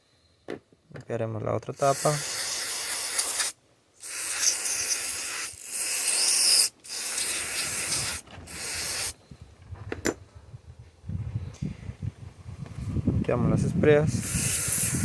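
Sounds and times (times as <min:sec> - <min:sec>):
aerosol spray hissing: 0:01.8 - 0:09.2, 0:14.2 - 0:15.0.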